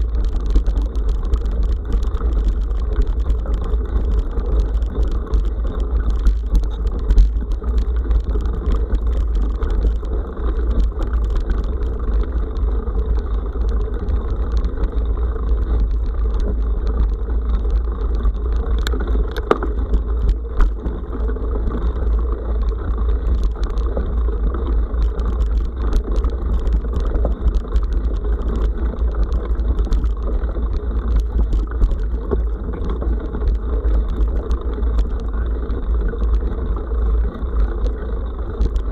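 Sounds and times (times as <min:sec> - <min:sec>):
stones clicking and knocking: 0:00.0 - 0:21.1
bike rattling: 0:00.0 - 0:38.9
bike tyres rumbling on dirt: 0:00.0 - 0:38.9.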